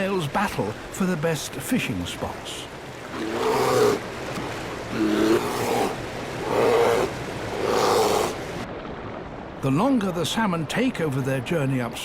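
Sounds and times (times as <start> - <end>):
rushing water: 0.0 - 12.0
bears roaring: 3.1 - 4.1, 4.8 - 8.4.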